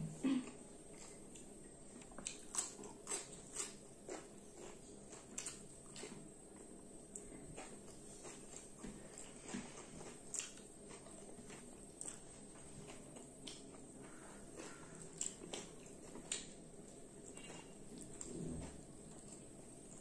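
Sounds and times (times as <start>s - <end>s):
people chewing: 0.1s - 20.0s.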